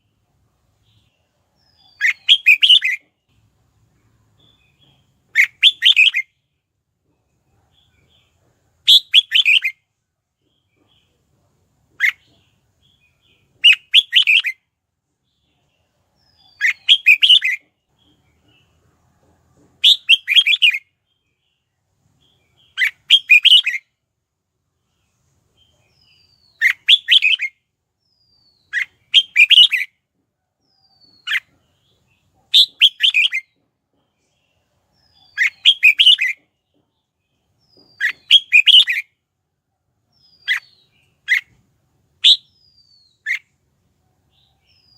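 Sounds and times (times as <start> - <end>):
bird singing whistled notes: 0.8 - 3.1, 4.4 - 6.3, 8.9 - 9.8, 12.9 - 14.6, 16.2 - 17.7, 19.8 - 21.3, 22.3 - 23.9, 25.9 - 29.9, 32.5 - 33.6, 34.9 - 36.4, 37.6 - 39.1, 40.1 - 41.5, 42.2 - 43.5.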